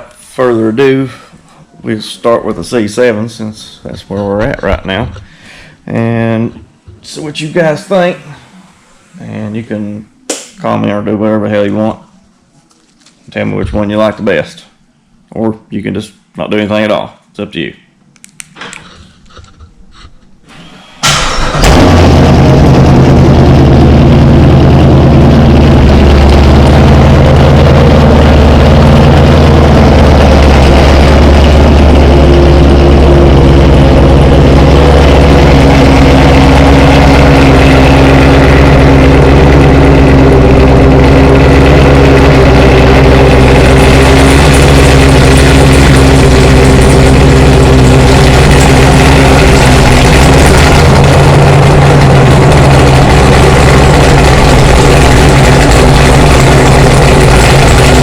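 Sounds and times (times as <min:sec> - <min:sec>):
car engine idling loudly: 0:21.0 - 0:58.0.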